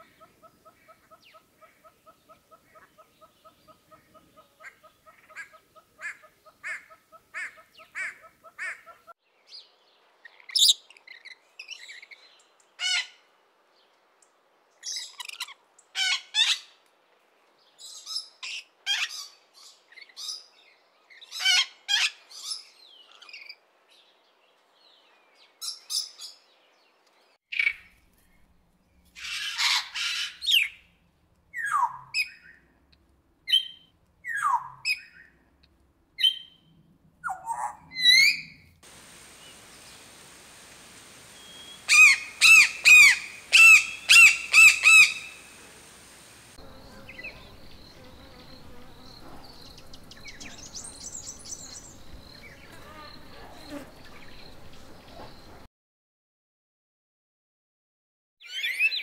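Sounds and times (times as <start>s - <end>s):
bird repeated calls: 39.1s - 55.6s
descending whistled bird notes: 41.2s - 45.5s
bird chirps and squawks: 41.6s - 45.5s.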